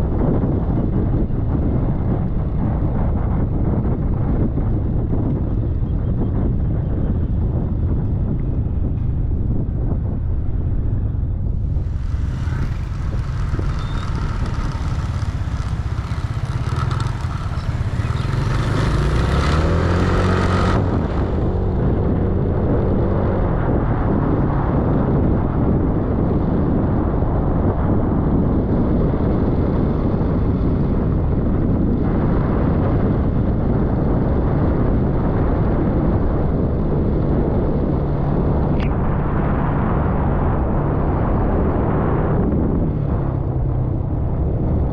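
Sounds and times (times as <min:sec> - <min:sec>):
wind rumbling on microphone: 0:00.0 - 0:44.9
scooter engine accelerating: 0:11.5 - 0:23.2.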